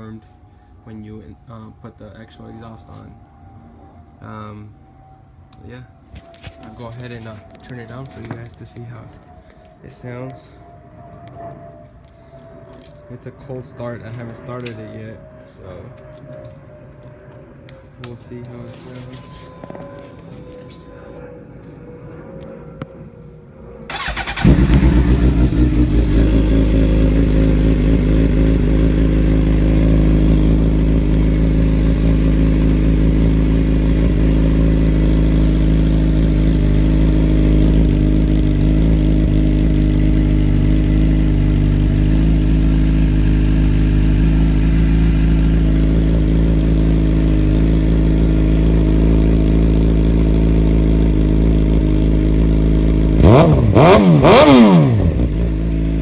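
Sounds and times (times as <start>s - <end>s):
motorcycle engine starting and idling: 23.9s - 56.0s.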